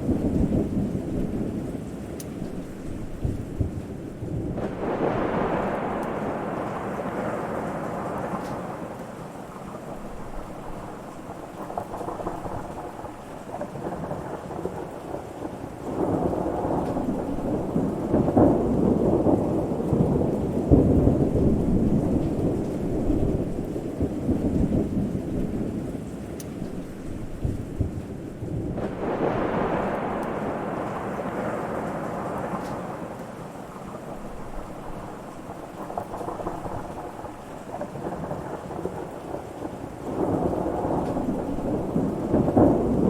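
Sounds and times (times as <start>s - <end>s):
rolling thunder: 0.0s - 43.0s
steady rain: 0.0s - 43.0s.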